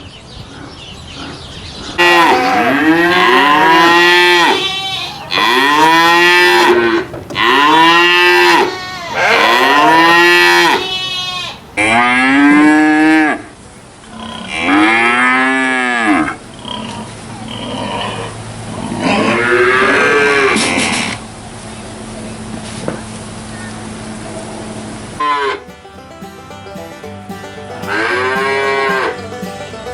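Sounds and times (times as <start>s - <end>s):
cattle mooing: 2.0s - 13.5s, 14.1s - 21.2s, 25.2s - 25.6s, 27.7s - 29.4s.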